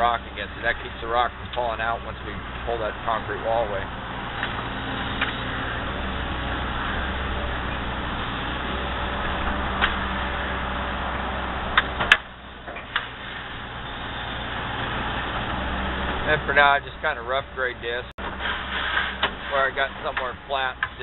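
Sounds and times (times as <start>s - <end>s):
excavator diesel engine running: 0.0s - 21.0s
sharp clicks or knocks: 9.5s - 10.2s, 11.7s - 13.2s.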